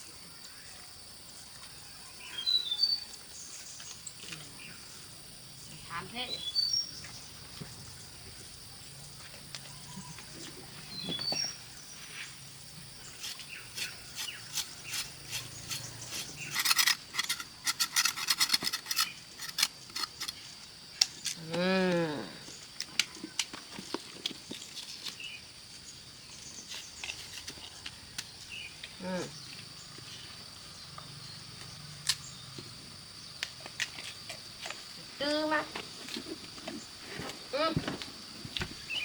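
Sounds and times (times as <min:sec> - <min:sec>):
sharp clicks and scrapes: 0:13.2 - 0:21.4.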